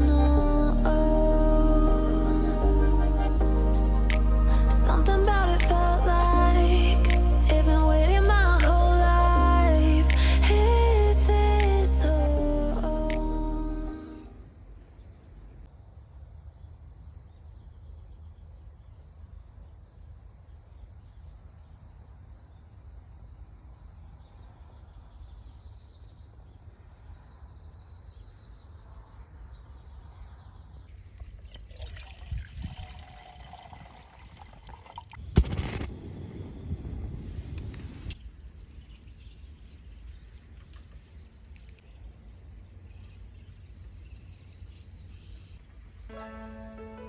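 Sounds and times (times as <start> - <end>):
wind rumbling on microphone: 31.2 - 44.1.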